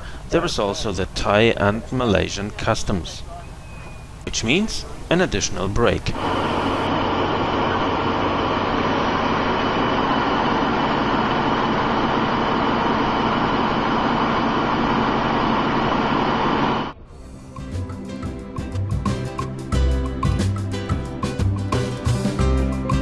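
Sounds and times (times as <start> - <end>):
train rumble and hiss: 0.0 - 17.8
steady low hums: 4.2 - 17.6.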